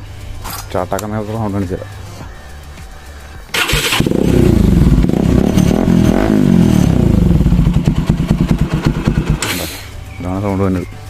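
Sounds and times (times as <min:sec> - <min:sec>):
motorcycle engine starting and revving: 0:03.5 - 0:10.0.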